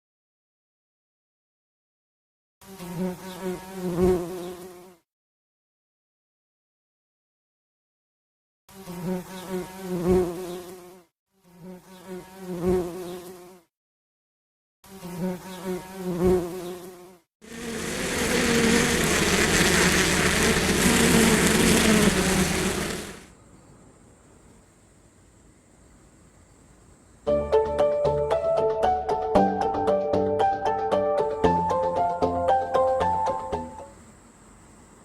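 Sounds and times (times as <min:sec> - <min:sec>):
bees buzzing: 0:15.1 - 0:23.3.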